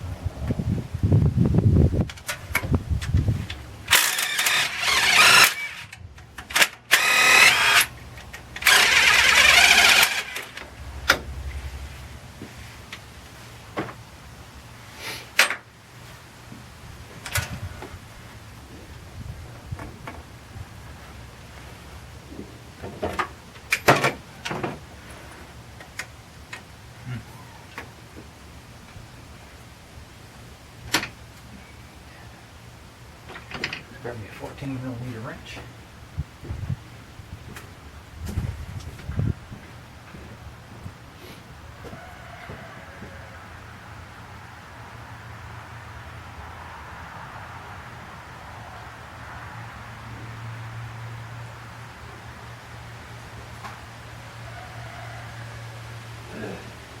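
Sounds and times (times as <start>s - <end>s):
steady low hum: 0.0s - 15.0s
power wrench running: 3.9s - 10.6s.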